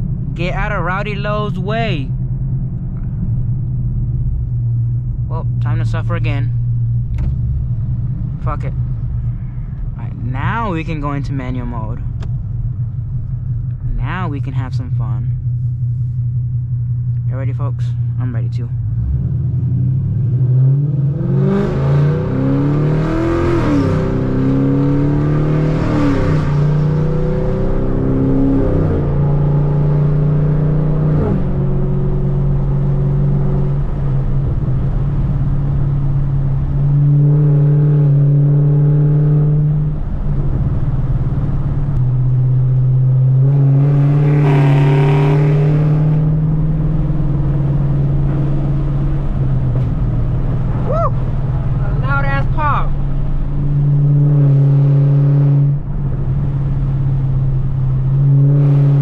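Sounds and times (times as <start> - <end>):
car engine accelerating through gears: 18.8 - 59.0.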